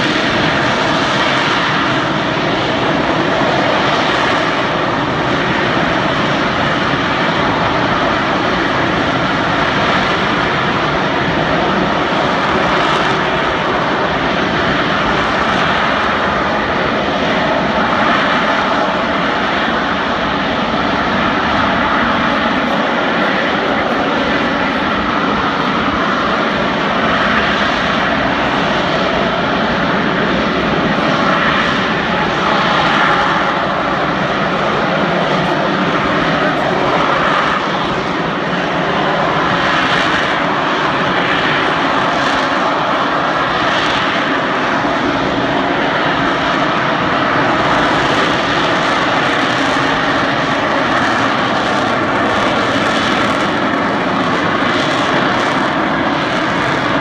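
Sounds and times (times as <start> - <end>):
jet engine roaring: 0.0 - 57.0.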